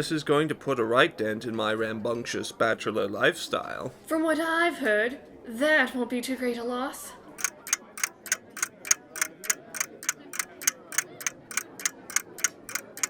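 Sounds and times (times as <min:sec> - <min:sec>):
clock ticking: 0:07.4 - 0:13.0.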